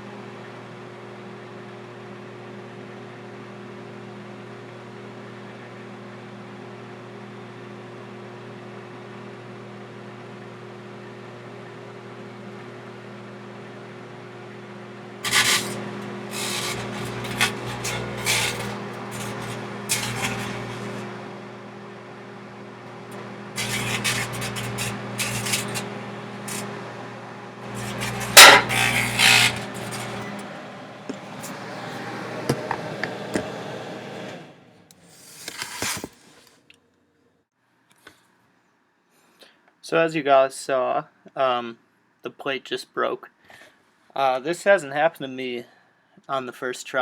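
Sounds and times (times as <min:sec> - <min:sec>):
microwave oven humming: 0:00.0 - 0:34.9
coals rasping and crackling: 0:15.2 - 0:21.4, 0:22.8 - 0:32.1.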